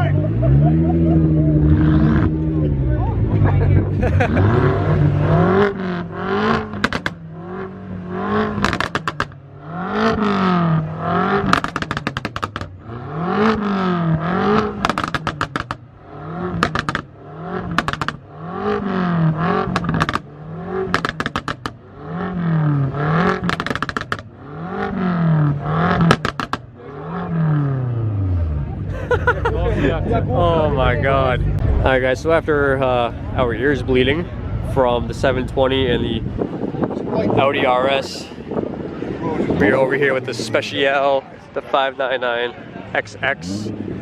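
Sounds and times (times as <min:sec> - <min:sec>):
sports car engine revving: 0:00.0 - 0:41.8, 0:42.5 - 0:44.0
exhaust crackles and pops: 0:05.6 - 0:07.2, 0:08.4 - 0:09.4, 0:11.3 - 0:26.8.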